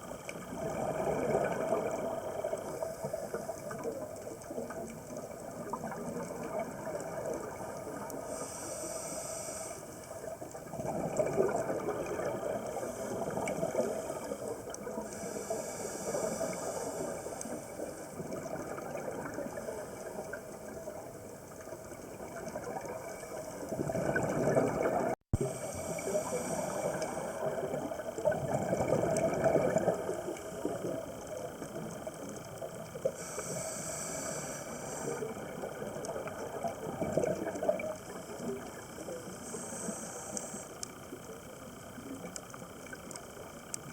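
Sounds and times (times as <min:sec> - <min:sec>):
regulator bubbles rumbling: 0:00.0 - 0:08.4, 0:10.1 - 0:15.4, 0:17.1 - 0:33.1, 0:34.9 - 0:39.6
steady underwater hiss: 0:00.0 - 0:43.9.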